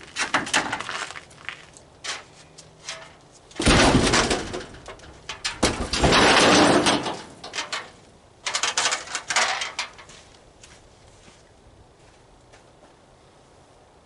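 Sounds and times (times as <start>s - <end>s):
scrap metal clanking and rattling: 2.0s - 10.2s
scrap metal scraping: 2.0s - 10.2s.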